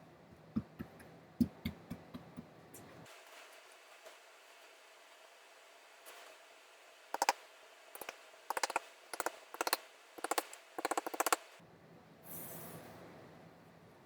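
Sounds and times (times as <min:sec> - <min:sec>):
hammer tapping metal tacks: 0:07.2 - 0:07.4, 0:08.0 - 0:11.5
brief hiss: 0:12.2 - 0:13.0.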